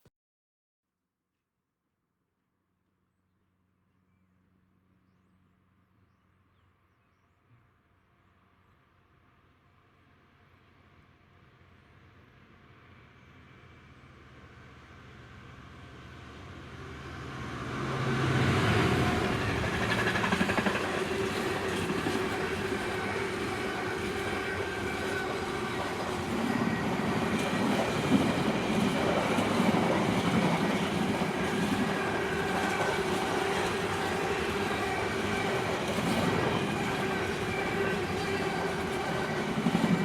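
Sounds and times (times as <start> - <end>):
train passing close by: 10.4 - 40.0.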